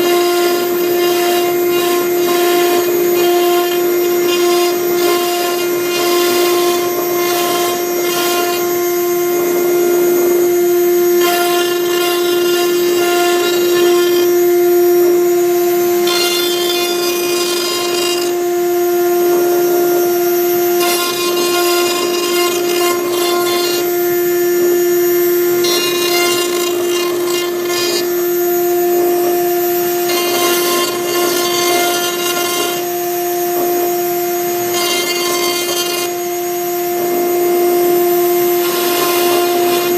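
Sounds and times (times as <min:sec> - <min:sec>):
bit rasping into wood: 0:00.0 - 0:39.9
router spindle whine: 0:00.0 - 0:39.9.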